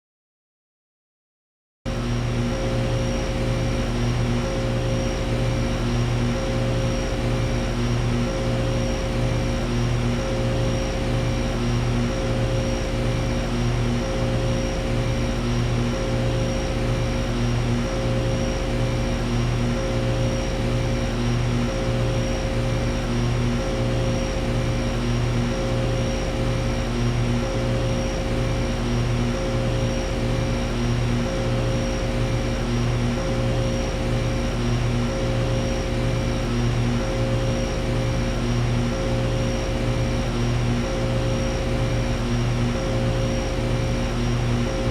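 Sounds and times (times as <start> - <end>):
air conditioner droning: 2.4 - 44.9.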